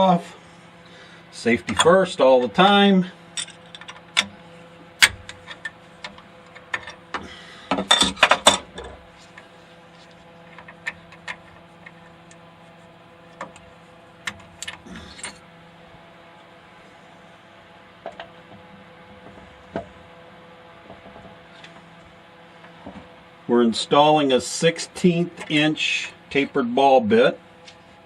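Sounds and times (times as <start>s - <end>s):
low hum: 0.0s - 26.7s
metal tools clicking and clinking: 3.4s - 4.3s.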